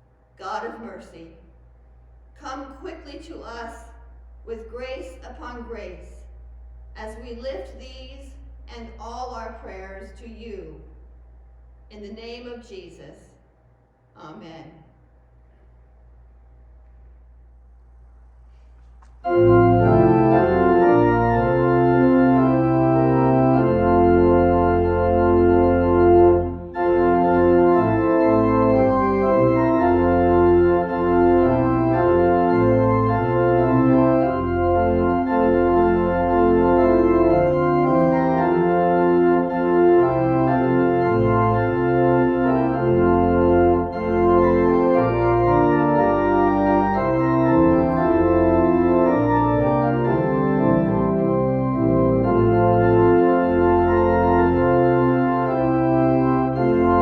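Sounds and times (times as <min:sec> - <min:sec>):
church organ chords: 0:19.1 - 0:57.0.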